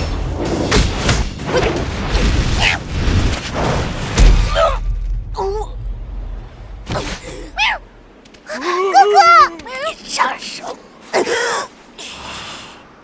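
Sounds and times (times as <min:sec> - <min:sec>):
heavy boom: 0:03.1 - 0:06.9.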